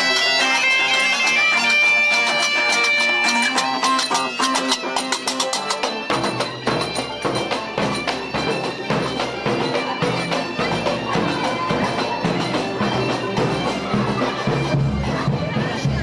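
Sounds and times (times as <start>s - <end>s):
bagpipes playing folk tune: 0.0s - 15.8s
regular beat: 0.0s - 16.0s.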